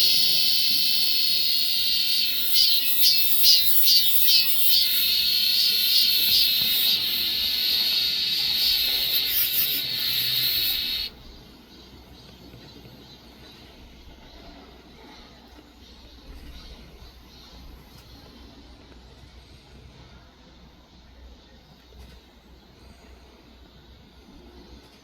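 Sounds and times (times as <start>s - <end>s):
cicada buzzing: 0.0s - 11.2s.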